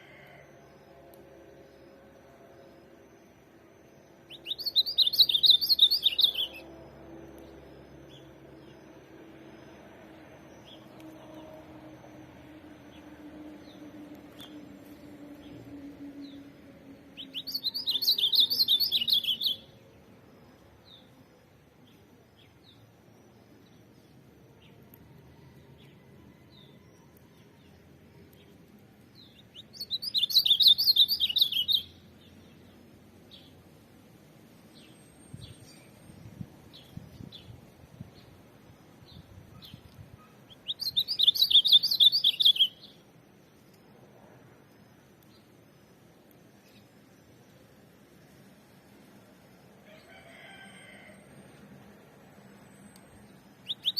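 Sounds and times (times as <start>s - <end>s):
bird singing warbled phrases: 4.3s - 6.6s, 17.1s - 19.8s, 29.2s - 32.6s, 40.5s - 43.0s, 53.6s - 53.9s.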